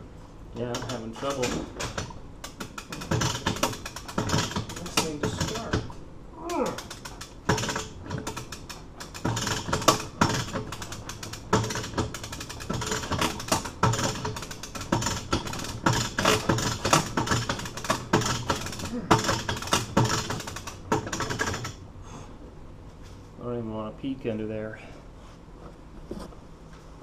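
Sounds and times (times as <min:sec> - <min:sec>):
winch pawl ratcheting: 0:00.6 - 0:21.8.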